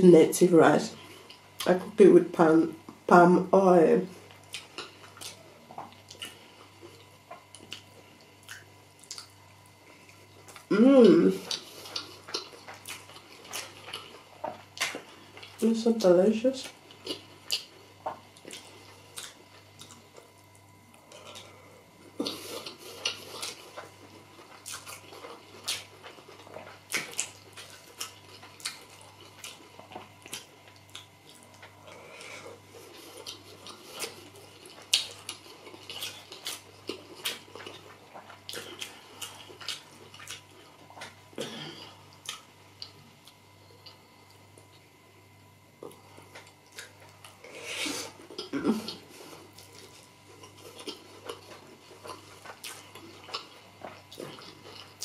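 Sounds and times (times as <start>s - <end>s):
faint steady hum: 0.0s - 55.0s
chewing soft food: 1.0s - 1.9s, 4.1s - 55.0s.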